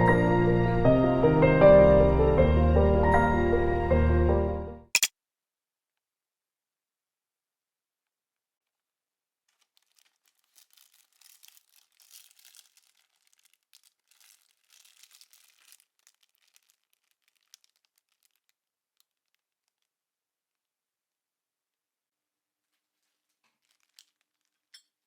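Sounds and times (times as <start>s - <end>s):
crinkling and scratchy rustling: 8.5s - 20.0s, 22.6s - 25.0s.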